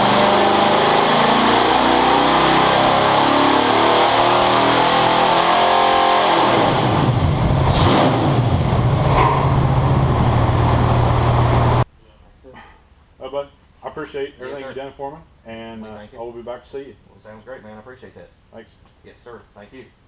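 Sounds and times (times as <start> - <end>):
engine running at high rpm: 0.0 - 11.8.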